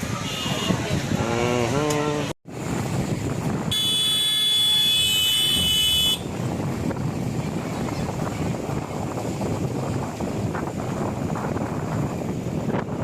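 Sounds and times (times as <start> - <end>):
roadside noise: 0.0 - 13.0
wind on microphone: 0.0 - 13.0
vehicle horn blast: 0.2 - 0.8, 3.7 - 6.4.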